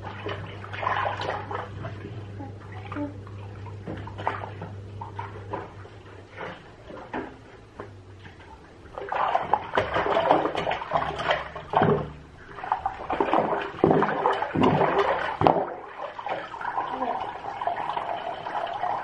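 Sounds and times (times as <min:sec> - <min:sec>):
sharp water splashes: 0:00.0 - 0:02.0, 0:08.9 - 0:19.0
water running in bathtub: 0:00.0 - 0:19.0.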